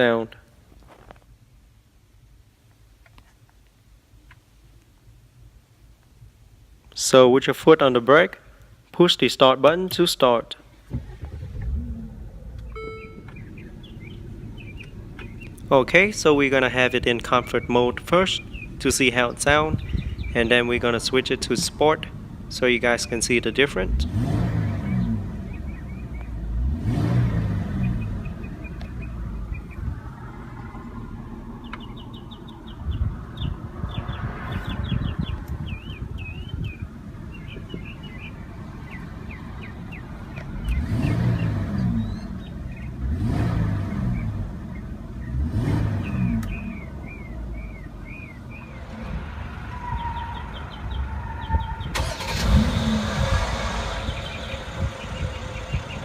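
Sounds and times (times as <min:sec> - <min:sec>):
car engine idling and revving: 0:10.9 - 0:56.0
birds chirping faintly: 0:11.8 - 0:52.5, 0:53.3 - 0:56.0.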